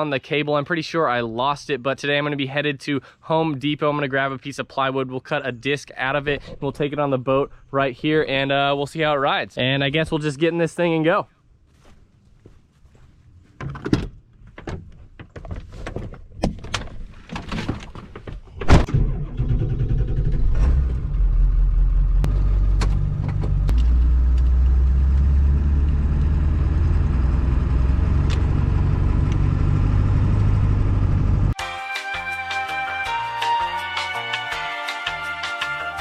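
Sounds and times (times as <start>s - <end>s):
car door slamming: 18.6s - 19.0s
car engine low rumble: 18.7s - 31.6s.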